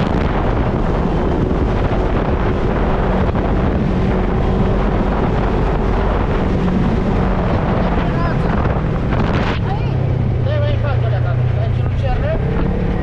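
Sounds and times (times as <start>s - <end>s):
vehicle engine running: 0.0s - 13.0s
wind buffeting microphone: 0.0s - 13.0s.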